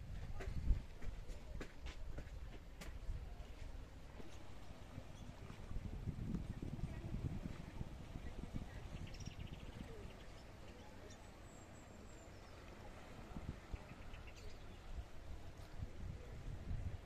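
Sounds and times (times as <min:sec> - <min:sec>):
small birds chirping: 0:06.9 - 0:15.2.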